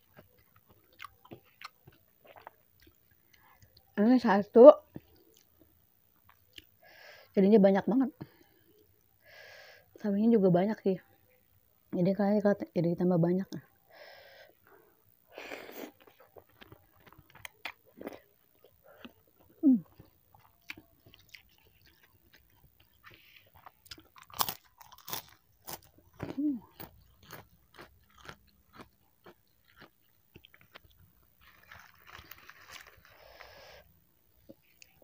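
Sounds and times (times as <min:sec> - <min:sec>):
wet chewing of noodles: 0:00.0 - 0:03.9, 0:15.5 - 0:35.0.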